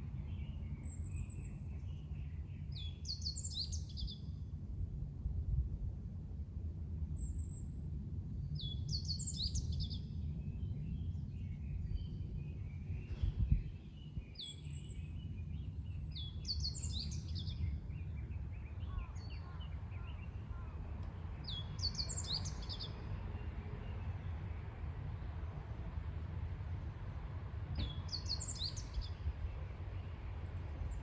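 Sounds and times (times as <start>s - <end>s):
steady low rumble: 0.0s - 31.0s
soft bird chirps: 8.6s - 24.2s, 27.8s - 30.2s
low thump: 27.7s - 28.0s.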